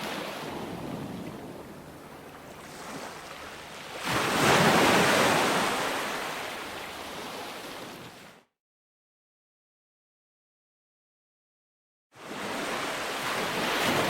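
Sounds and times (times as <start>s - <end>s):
ocean waves washing onto beach: 0.0s - 8.4s, 12.2s - 14.0s.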